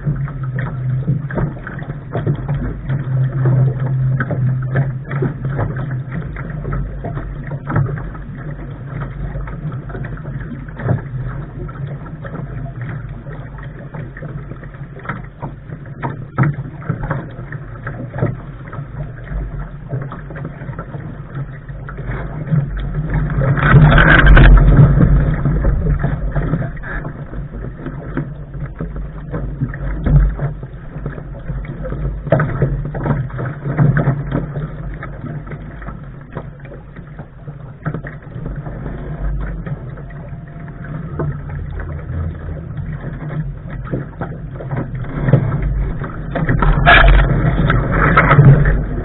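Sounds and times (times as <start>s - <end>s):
water slapping against hull: 0.0s - 49.0s.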